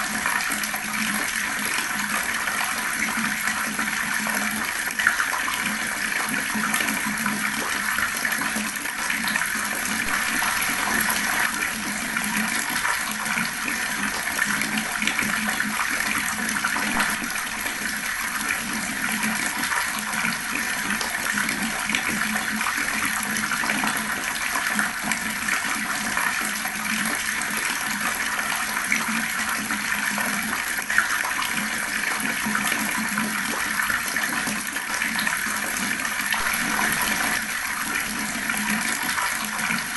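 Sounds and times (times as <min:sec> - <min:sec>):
water rushing and splashing: 0:09.4 - 0:15.5, 0:16.1 - 0:20.2, 0:36.2 - 0:39.9.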